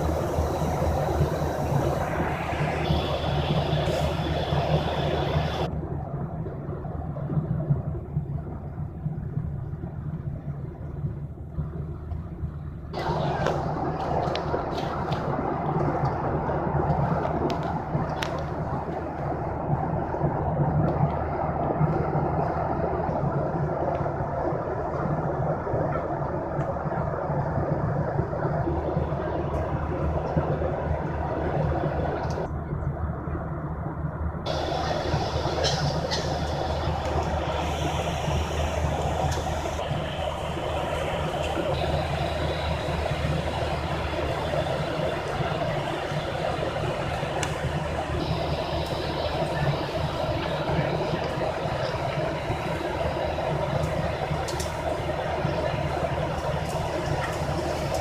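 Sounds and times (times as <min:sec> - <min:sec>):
hiss: 0:00.0 - 0:05.7, 0:34.5 - 0:58.0
low engine drone: 0:00.0 - 0:58.0.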